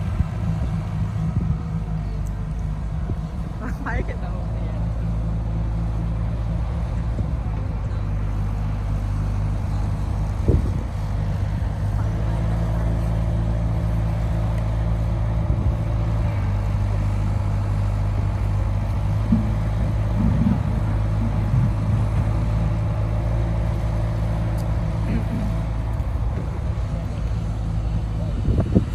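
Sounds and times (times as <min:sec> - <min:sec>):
diesel engine running at low revs: 0:00.0 - 0:28.9
engine knocks: 0:00.0 - 0:28.9.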